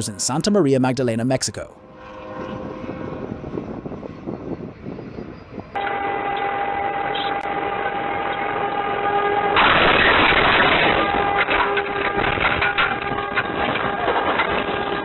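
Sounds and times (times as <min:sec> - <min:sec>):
street and vehicle noise: 0:00.0 - 0:15.0
train horn blast: 0:01.8 - 0:04.1, 0:05.7 - 0:15.0.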